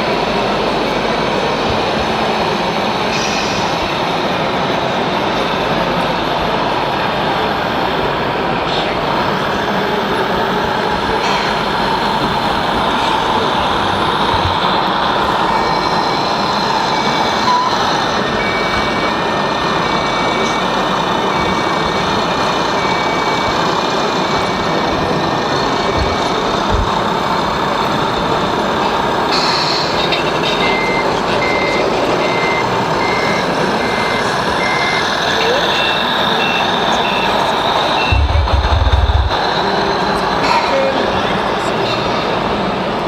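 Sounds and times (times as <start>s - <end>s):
steady background noise: 0.0s - 43.0s
reversing beeper: 10.0s - 27.1s, 29.3s - 42.0s
lower reversing beeper: 10.1s - 26.7s, 29.4s - 39.9s.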